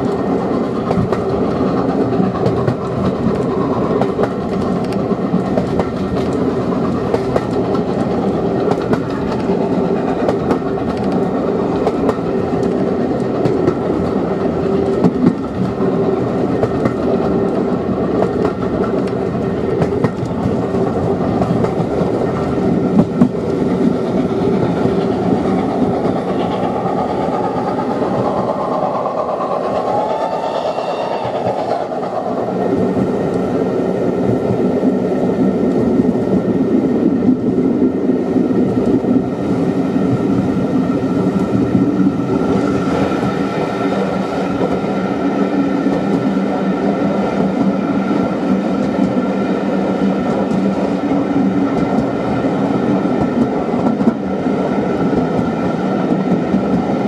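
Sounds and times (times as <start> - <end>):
train running inside a carriage: 0.0 - 57.0.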